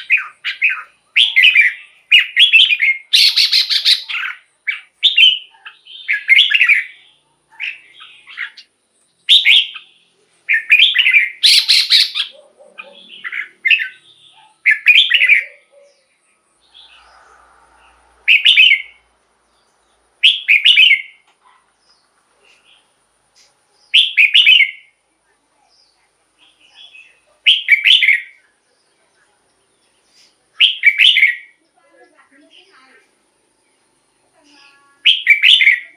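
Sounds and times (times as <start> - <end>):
bird whistling bubbling phrases: 10.5 - 14.0, 35.0 - 35.9.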